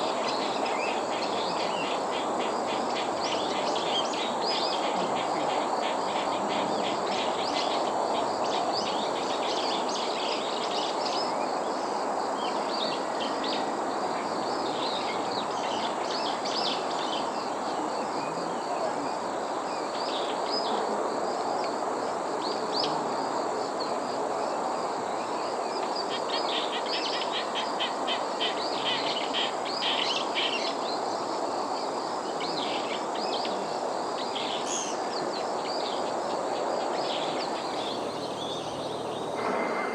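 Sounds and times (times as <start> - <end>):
steady background hiss: 0.0 - 39.9
small birds chirping: 32.3 - 39.9.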